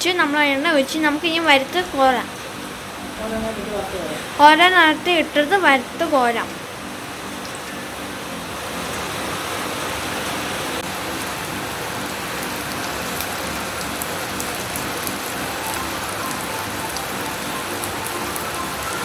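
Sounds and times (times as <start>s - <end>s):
snacks deep-frying in oil: 8.8s - 19.0s.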